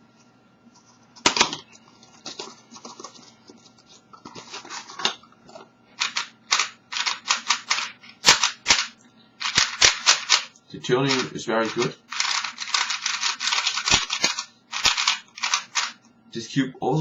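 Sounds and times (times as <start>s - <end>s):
puzzle cube clicking and clacking: 6.0s - 16.0s.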